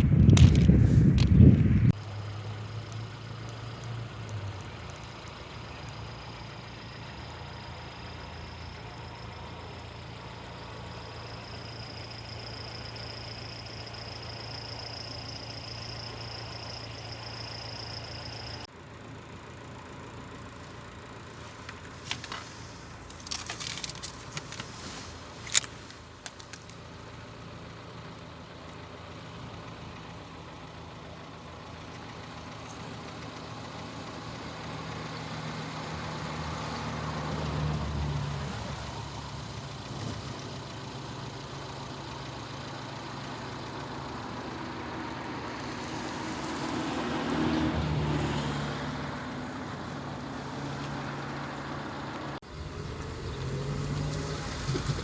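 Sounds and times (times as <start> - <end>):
motor vehicles passing: 0.0 - 18.7, 32.3 - 40.9, 42.5 - 55.0.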